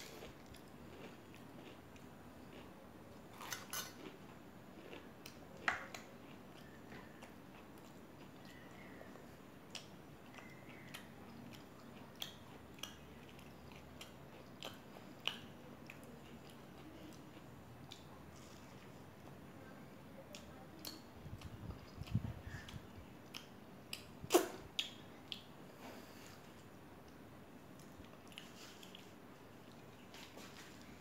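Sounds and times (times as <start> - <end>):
chewing with sharp crunches: 0.0 - 19.4, 26.1 - 31.0.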